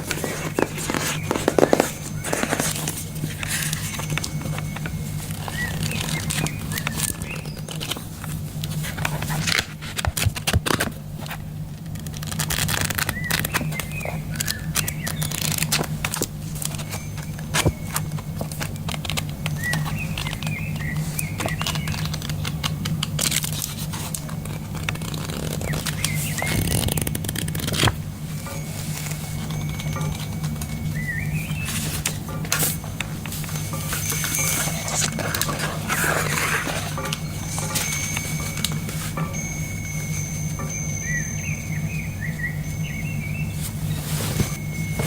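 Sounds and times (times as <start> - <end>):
crackling handling noise: 0.0 - 45.0
steady low hum: 0.0 - 45.0
bird chirps: 0.2 - 8.0, 12.8 - 16.0, 19.3 - 22.9, 24.3 - 27.3, 28.3 - 45.0.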